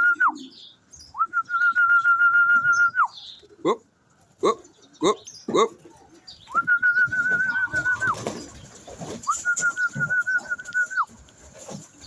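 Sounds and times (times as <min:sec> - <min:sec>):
pigeons cooing: 0:00.0 - 0:12.0
warbling whistles: 0:06.5 - 0:08.4, 0:09.2 - 0:11.1.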